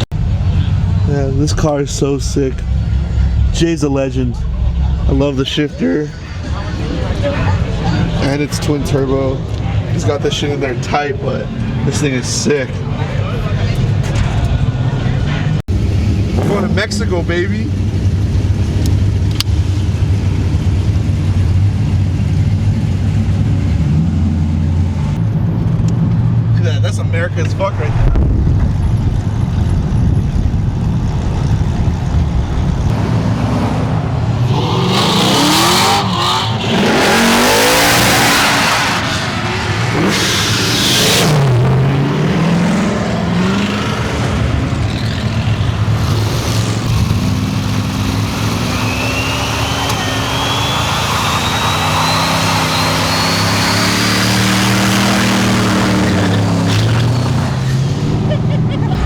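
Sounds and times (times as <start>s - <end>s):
car engines revving: 0.0s - 59.0s
thin whistle rising in pitch: 48.4s - 54.0s.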